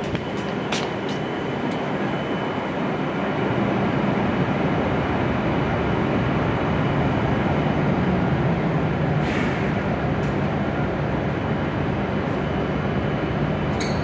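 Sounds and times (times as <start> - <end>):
train equipment humming: 0.0 - 14.0.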